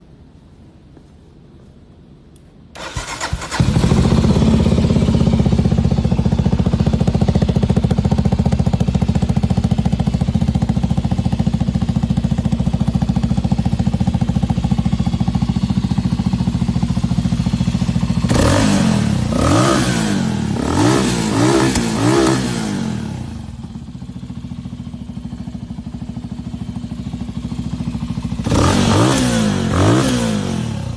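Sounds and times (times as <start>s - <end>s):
motorcycle engine revving: 2.8s - 30.9s
motorcycle engine starting: 2.8s - 30.9s
motorcycle engine idling: 2.9s - 30.9s.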